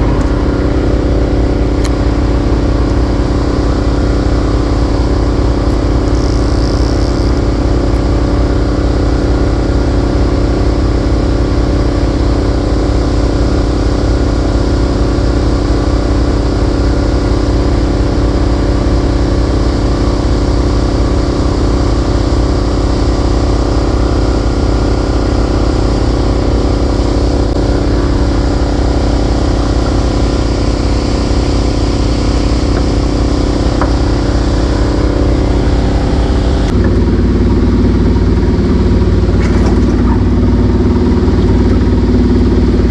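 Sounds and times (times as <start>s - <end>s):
motorboat engine droning: 0.0s - 42.9s.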